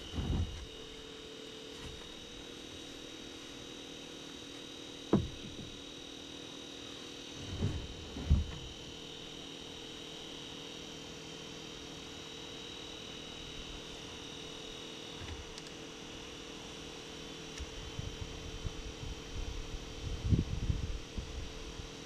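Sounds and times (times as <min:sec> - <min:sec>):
thin steady hum: 0:00.0 - 0:22.0
low thumps: 0:05.1 - 0:05.8, 0:07.4 - 0:08.8.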